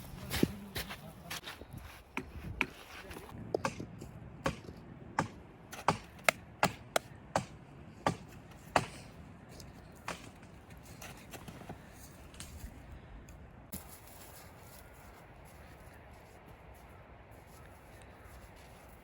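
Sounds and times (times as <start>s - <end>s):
blade chopping: 3.6s - 9.0s.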